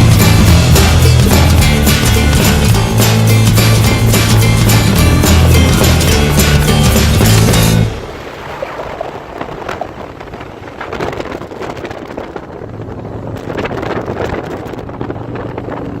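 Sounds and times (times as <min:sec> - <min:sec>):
motorcycle engine hum: 0:00.0 - 0:16.0
wind buffeting microphone: 0:00.0 - 0:16.0.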